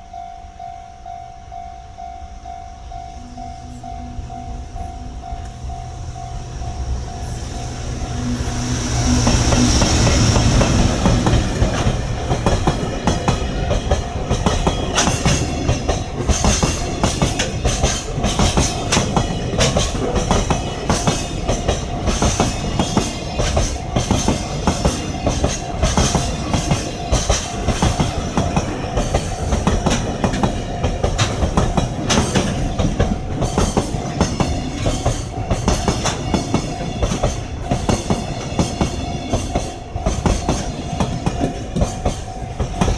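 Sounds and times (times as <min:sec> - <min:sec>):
freight train wheels clacking: 0:04.7 - 0:42.9.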